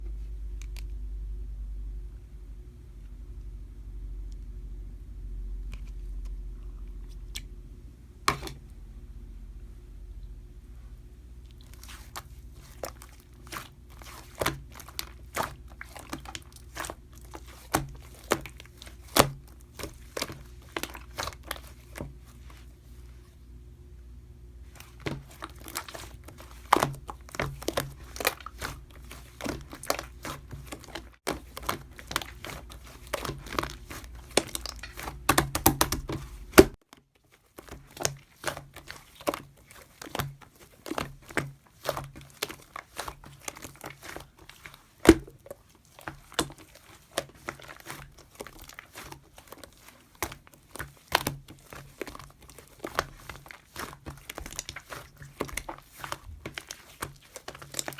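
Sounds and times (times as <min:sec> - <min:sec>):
slime being kneaded by hand: 0:08.2 - 0:08.8, 0:11.4 - 0:23.4, 0:24.6 - 0:57.9
sticky pops and crackles: 0:25.0 - 0:36.8.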